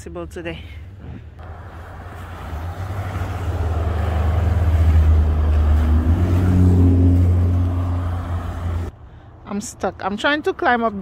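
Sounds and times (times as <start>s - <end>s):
vehicle engine passing: 1.4s - 8.9s.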